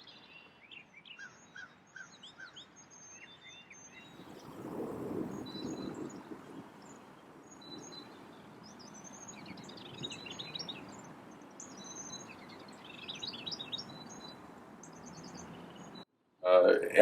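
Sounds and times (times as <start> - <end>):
songbirds chirping and singing: 0.0 - 16.0
low steady background noise: 3.8 - 17.0.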